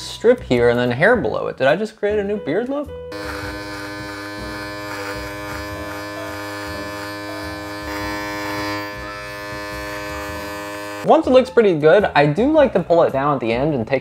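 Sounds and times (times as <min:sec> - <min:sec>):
beard trimmer buzzing: 0:03.1 - 0:11.1.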